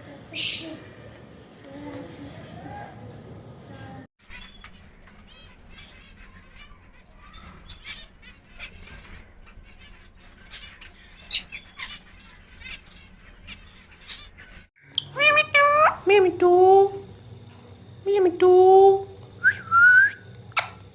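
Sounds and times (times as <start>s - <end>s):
parrots chirping and squawking: 4.2s - 16.2s, 20.5s - 20.9s.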